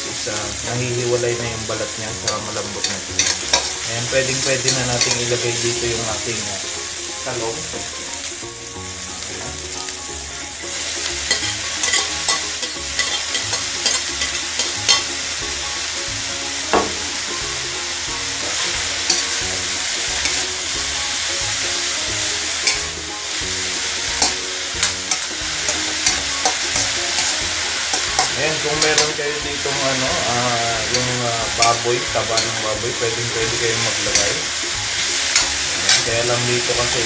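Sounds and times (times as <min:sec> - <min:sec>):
vegetables sizzling in a wok: 0:00.0 - 0:37.0
spatula scraping a pan: 0:02.2 - 0:05.8, 0:11.0 - 0:15.2, 0:18.4 - 0:20.8, 0:21.7 - 0:37.0.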